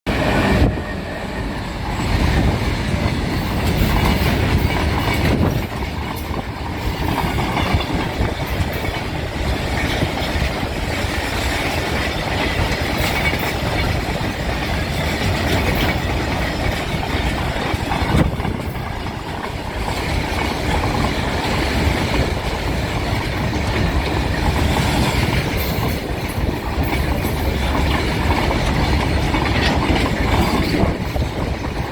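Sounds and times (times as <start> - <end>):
freight train rumbling and rattling: 0.0 - 31.9
wheels clattering over rail joints: 1.5 - 31.9.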